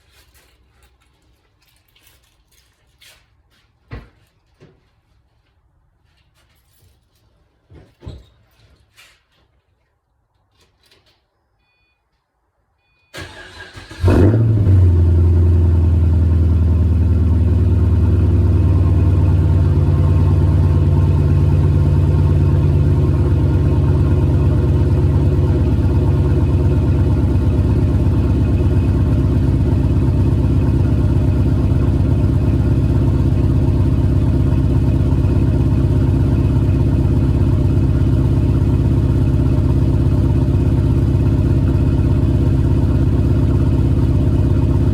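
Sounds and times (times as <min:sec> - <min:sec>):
car engine cranking: 0:13.2 - 0:15.1
car engine fast idle: 0:13.2 - 0:44.9.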